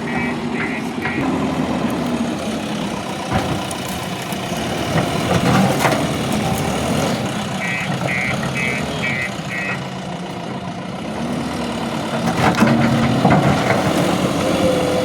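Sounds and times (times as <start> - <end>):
diesel engine running: 0.0 - 15.0
electronic warning beeper: 7.6 - 9.8.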